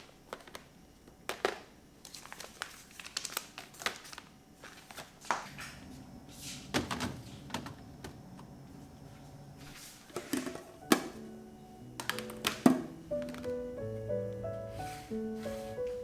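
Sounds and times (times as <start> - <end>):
objects clicking and tapping: 12.0 - 13.5.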